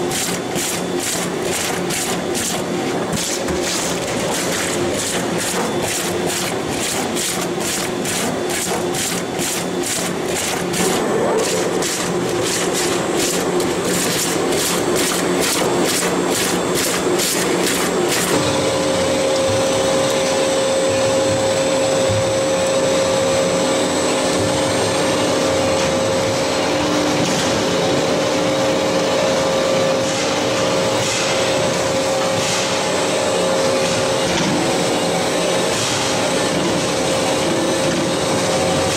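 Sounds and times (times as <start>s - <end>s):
juice extractor motor hum: 0.0s - 30.3s.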